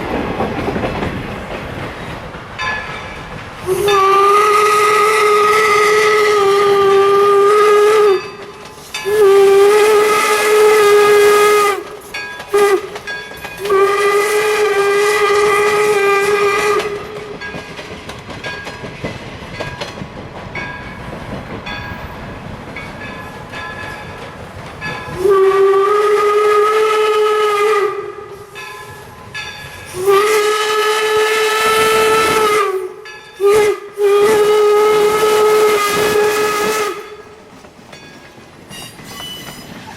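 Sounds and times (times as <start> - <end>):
steam hiss: 0.0 - 19.8, 23.0 - 39.9
steam whistle blasts: 3.6 - 13.0, 13.6 - 17.3, 25.1 - 29.2, 29.9 - 37.4.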